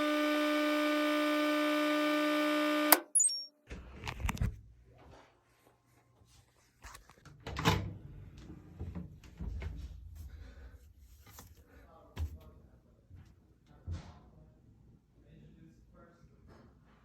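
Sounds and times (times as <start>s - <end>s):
washing machine buzzy signal tone: 0.0s - 3.5s.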